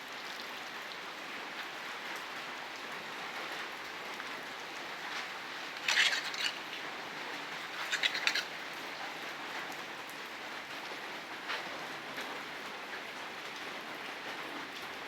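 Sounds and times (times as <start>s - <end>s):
steady rain falling: 0.0s - 15.0s
rapid high rattle: 5.8s - 6.8s, 7.5s - 8.6s.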